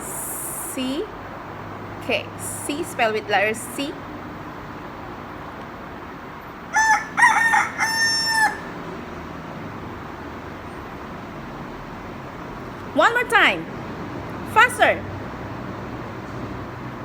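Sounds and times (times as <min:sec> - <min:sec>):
rooster crowing: 0:06.7 - 0:09.0.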